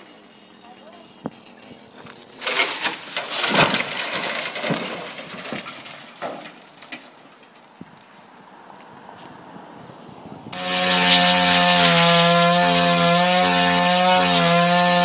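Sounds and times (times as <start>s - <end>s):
wood cracking: 0.0s - 8.1s
tree falling through branches: 1.2s - 8.1s.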